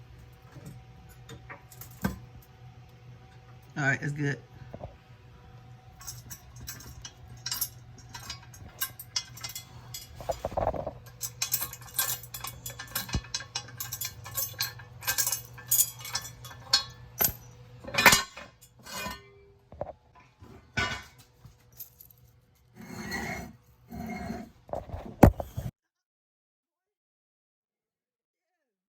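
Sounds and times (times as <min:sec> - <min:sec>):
low steady hum: 0:00.0 - 0:25.7
hand tools clinking: 0:06.0 - 0:19.3.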